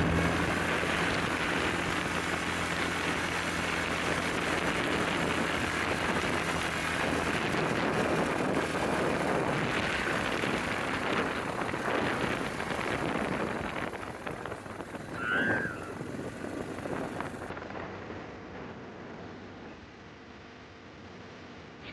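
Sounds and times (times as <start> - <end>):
wind gusting: 0.0 - 17.5
wind buffeting microphone: 0.0 - 19.2
short high squeak: 15.1 - 15.9.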